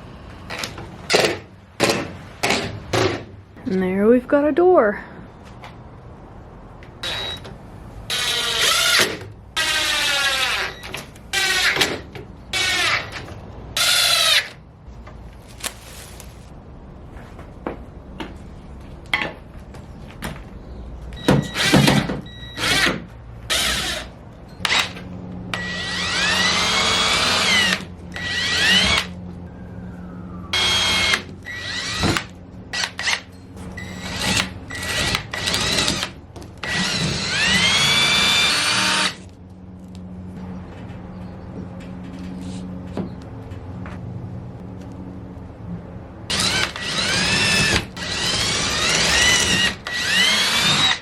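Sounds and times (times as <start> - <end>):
power drill driving screws: 8.1 - 11.9, 24.7 - 29.1, 30.6 - 39.2, 46.3 - 51.0.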